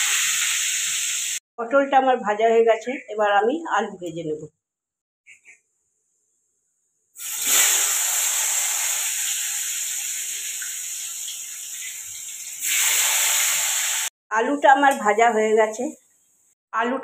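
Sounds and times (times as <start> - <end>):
potatoes sizzling in hot oil: 0.0 - 1.4, 7.2 - 14.1.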